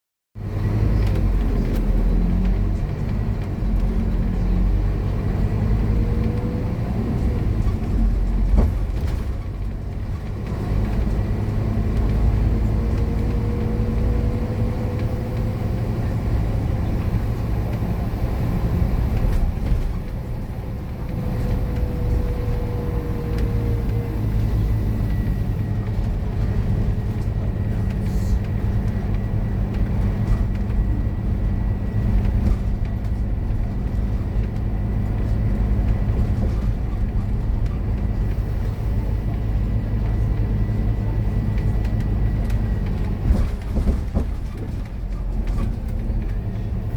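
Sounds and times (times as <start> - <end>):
bus diesel engine running hard: 0.4 - 46.9.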